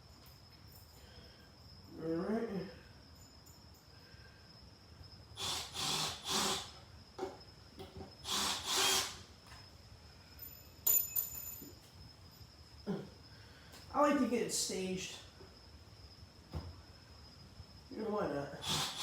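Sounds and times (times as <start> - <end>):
impact driver driving screws: 8.3 - 9.2.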